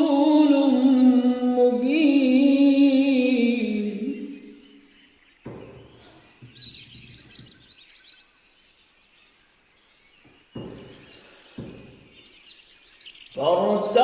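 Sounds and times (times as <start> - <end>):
faint small birds chirping: 0.0 - 14.0
soft thuds: 5.4 - 7.6, 10.2 - 12.3.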